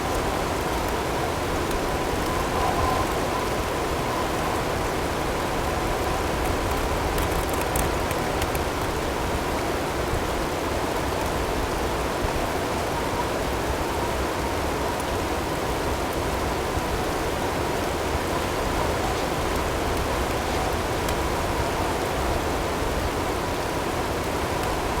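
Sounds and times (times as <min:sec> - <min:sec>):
snowstorm wind blowing: 0:12.3 - 0:25.0.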